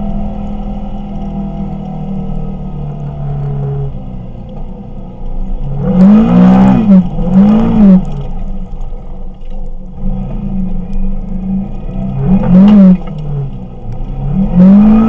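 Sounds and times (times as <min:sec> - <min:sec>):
engine running and revving: 0:00.0 - 0:15.0.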